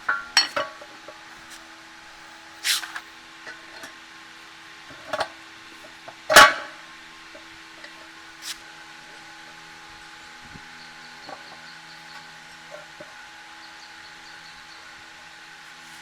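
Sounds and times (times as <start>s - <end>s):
faint steady hum: 0.0s - 16.0s
short scrape: 2.6s - 3.1s.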